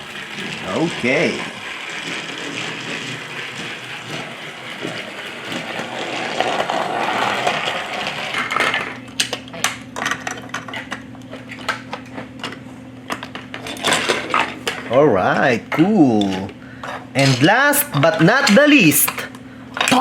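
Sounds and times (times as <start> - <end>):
plastic toy pieces clattering: 0.0 - 14.9, 16.2 - 20.0.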